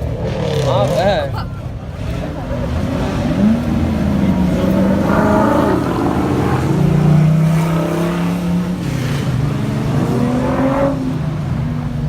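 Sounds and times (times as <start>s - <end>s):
car engine pulling away: 0.0s - 12.0s.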